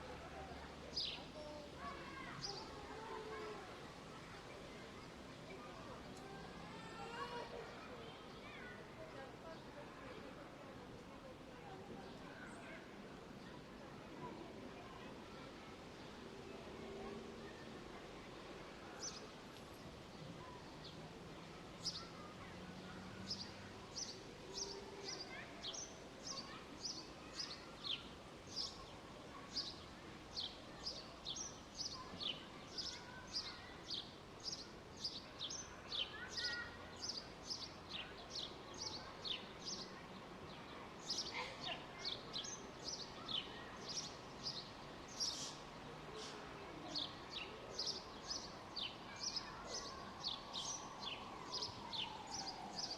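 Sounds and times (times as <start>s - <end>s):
songbird chirping: 47.0s - 52.9s.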